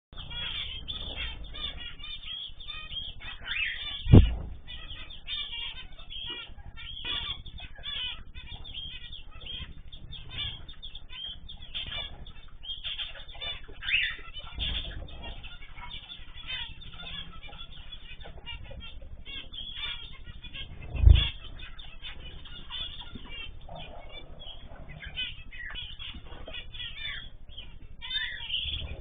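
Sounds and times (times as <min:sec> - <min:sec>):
small birds chirping: 0:00.1 - 0:29.0
loud thump: 0:04.1 - 0:04.6.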